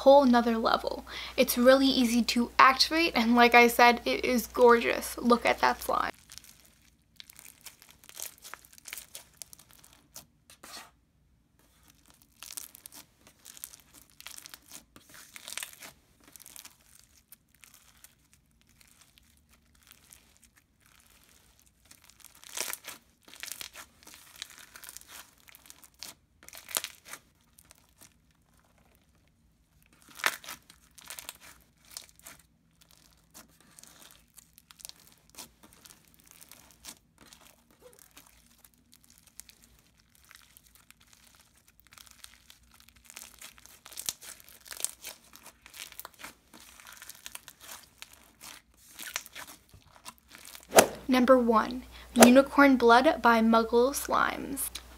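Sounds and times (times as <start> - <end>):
slime squished by hand: 6.1 - 10.3, 11.7 - 29.2, 29.8 - 51.4.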